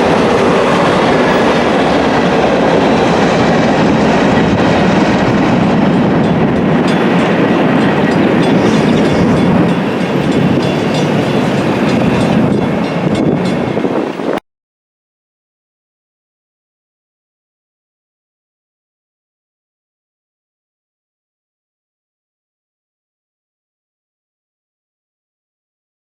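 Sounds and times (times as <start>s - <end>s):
train wheels on rails: 0.0s - 14.4s
wheels clicking over rail joints: 0.0s - 14.4s.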